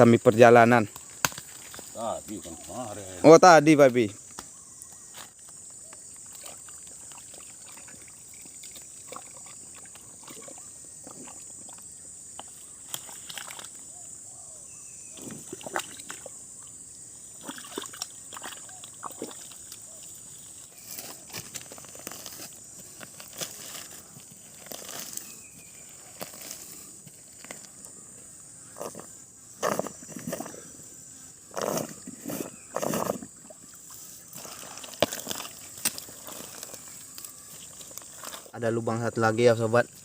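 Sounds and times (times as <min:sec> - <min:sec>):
insects droning: 0:00.0 - 0:40.0
water and mud sloshing: 0:06.2 - 0:11.8, 0:12.9 - 0:13.8, 0:15.2 - 0:16.3, 0:17.4 - 0:20.8, 0:31.6 - 0:38.5.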